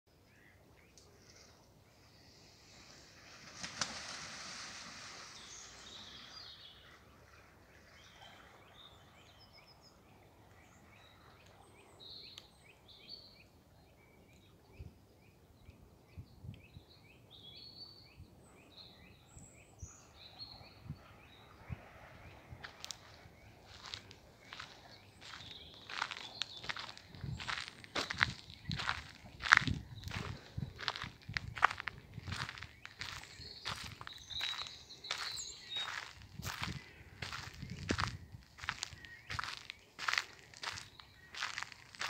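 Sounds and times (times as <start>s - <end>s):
small birds chirping: 22.3s - 42.0s
footsteps on dirt path: 23.7s - 42.0s.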